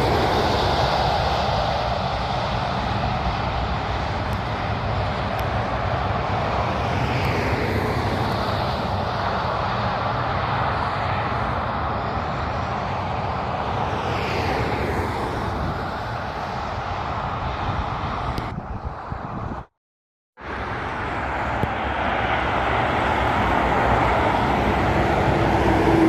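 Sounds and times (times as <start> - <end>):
heavy trucks driving past: 20.4 - 26.0.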